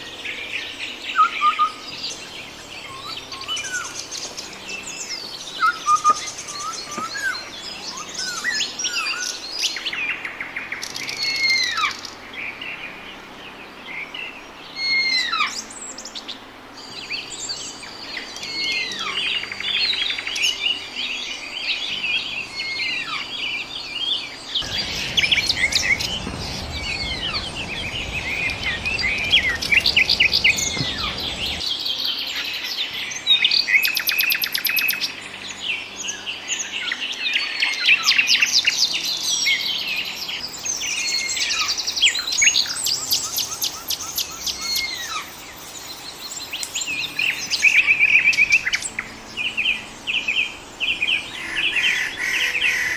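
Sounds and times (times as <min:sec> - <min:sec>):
small birds chirping and trilling: 0:00.0 - 0:52.9
even rushing noise: 0:24.6 - 0:31.6.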